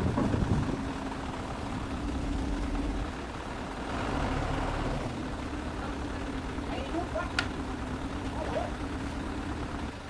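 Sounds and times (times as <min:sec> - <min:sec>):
heavy vehicle engine running: 0:00.0 - 0:10.0.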